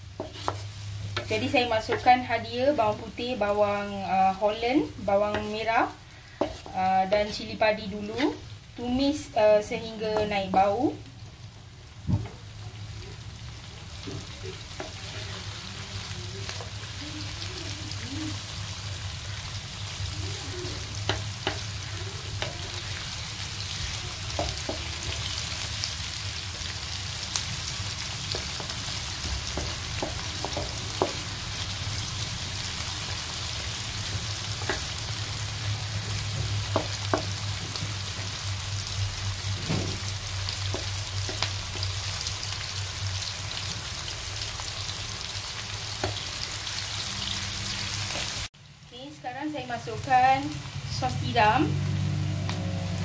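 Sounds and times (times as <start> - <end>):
wooden spatula scraping a pan: 0.0 - 2.3, 6.2 - 8.5
vegetables sizzling in hot oil: 0.0 - 53.0.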